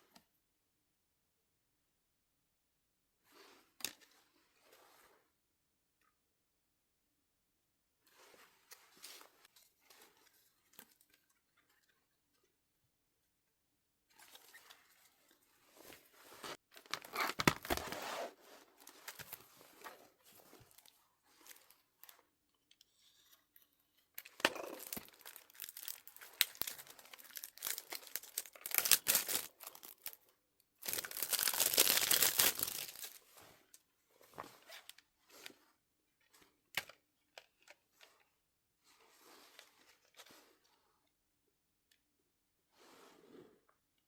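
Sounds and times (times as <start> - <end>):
packaging tearing and crinkling: 16.7 - 18.2, 24.2 - 30.2, 30.8 - 33.2.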